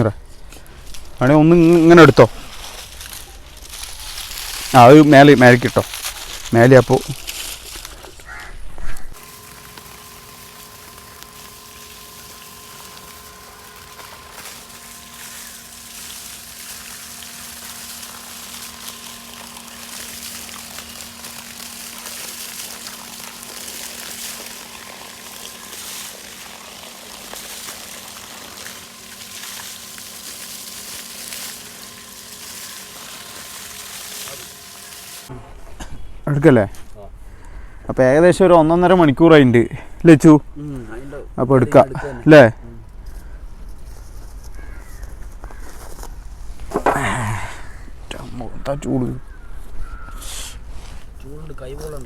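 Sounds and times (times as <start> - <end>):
faint steady hum: 0.0 - 52.0
fire crackling and hissing: 0.5 - 35.3, 50.2 - 52.0.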